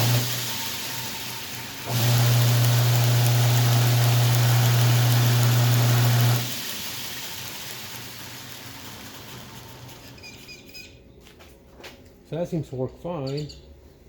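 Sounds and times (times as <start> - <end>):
electric motor humming: 0.0 - 10.2
sanding belt hissing: 0.0 - 10.4.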